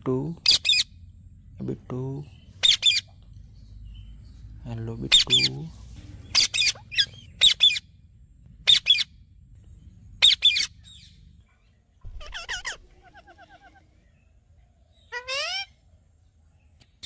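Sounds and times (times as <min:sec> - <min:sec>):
parrot screeching: 0:00.4 - 0:00.9, 0:02.6 - 0:03.1, 0:06.3 - 0:07.8, 0:08.7 - 0:09.1, 0:10.2 - 0:10.8, 0:12.1 - 0:13.8, 0:15.1 - 0:15.8
parrot warbling chatter: 0:00.4 - 0:01.0, 0:02.6 - 0:03.2, 0:05.1 - 0:05.5, 0:06.2 - 0:07.9, 0:08.7 - 0:09.1, 0:10.2 - 0:11.0, 0:12.1 - 0:14.0, 0:15.0 - 0:15.8.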